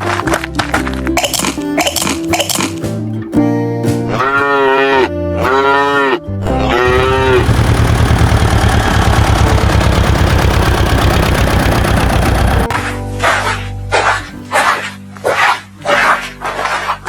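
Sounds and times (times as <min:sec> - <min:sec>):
calf mooing: 0:04.1 - 0:07.4
fast low pulsing sound: 0:06.9 - 0:12.7.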